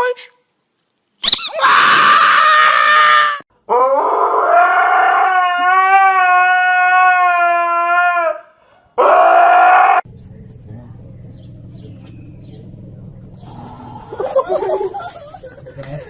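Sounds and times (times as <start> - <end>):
dog howling: 1.5 - 10.1.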